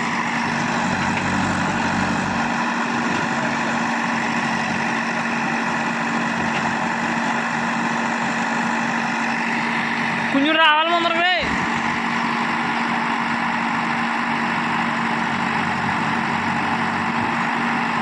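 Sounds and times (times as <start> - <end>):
diesel engine running at low revs: 0.0 - 18.0.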